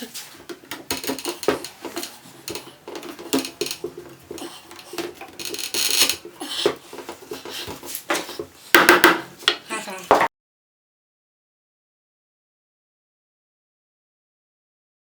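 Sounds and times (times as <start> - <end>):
scraping rub: 0.2 - 8.7.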